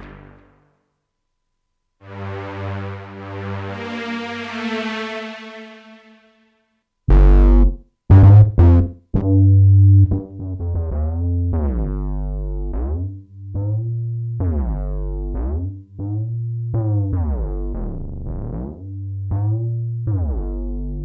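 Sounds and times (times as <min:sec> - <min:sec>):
held synth bass: 0:00.0 - 0:00.6, 0:02.0 - 0:06.2, 0:07.1 - 0:21.0
synthesizer notes with filter sweeps: 0:02.0 - 0:06.3.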